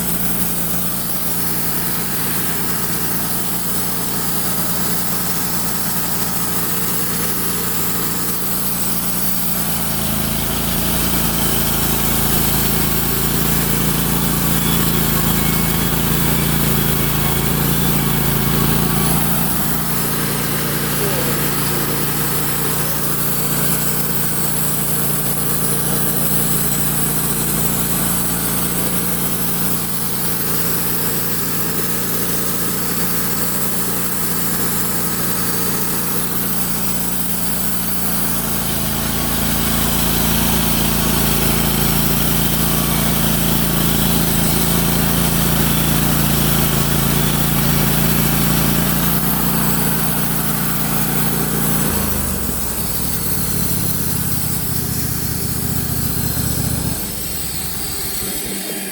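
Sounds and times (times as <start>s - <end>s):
small petrol engine running: 0.0s - 58.9s.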